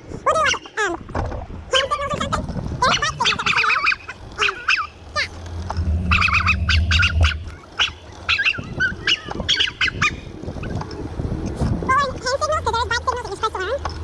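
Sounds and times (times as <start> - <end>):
low rumble: 5.0 - 7.9.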